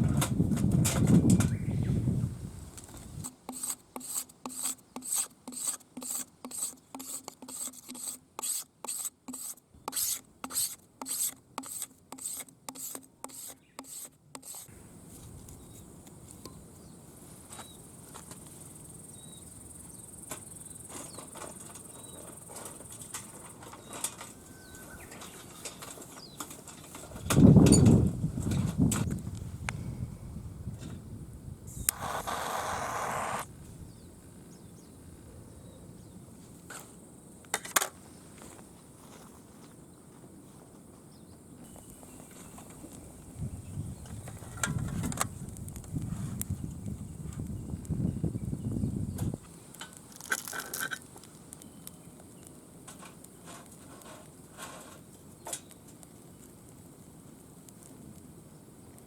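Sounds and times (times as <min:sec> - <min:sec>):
hand filing strokes: 0:03.2 - 0:14.7, 0:31.9 - 0:33.5.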